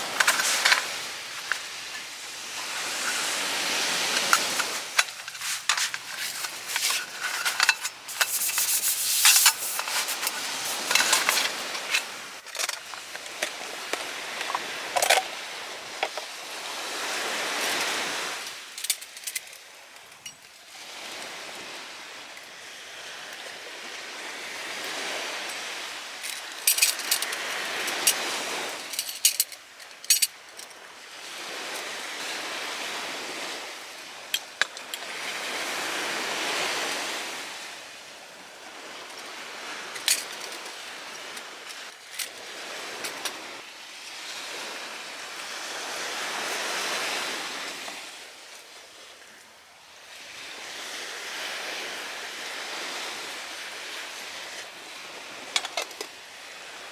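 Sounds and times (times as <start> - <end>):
waves washing onto shore: 0.0 - 56.9
sharp clinks and clicks: 4.1 - 15.3.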